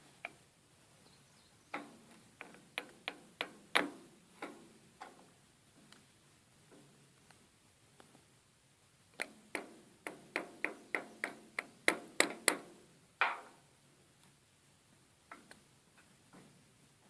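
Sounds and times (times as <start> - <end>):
hammer tapping metal: 9.5 - 12.6.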